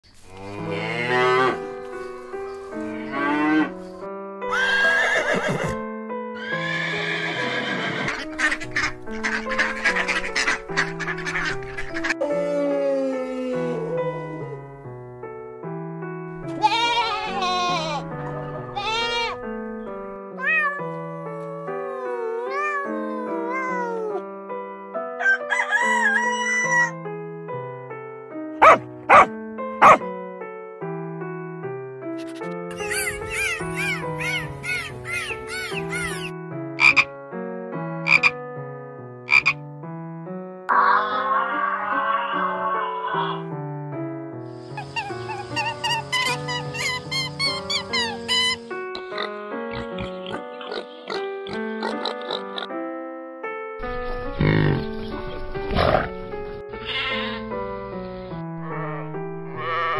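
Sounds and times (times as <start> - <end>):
background music with sustained notes: 0.1 - 59.9
horse whinnying: 4.5 - 5.8, 6.4 - 8.3, 56.8 - 57.4
goat bleating: 16.5 - 18.0
cat meowing: 20.4 - 24.2
calf calling: 32.8 - 37.1, 38.1 - 38.3, 44.8 - 52.7, 56.8 - 57.5.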